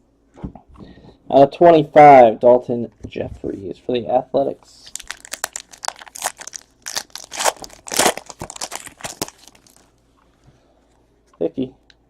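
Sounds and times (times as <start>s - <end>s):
card pack wrapper crinkling: 4.8s - 9.9s.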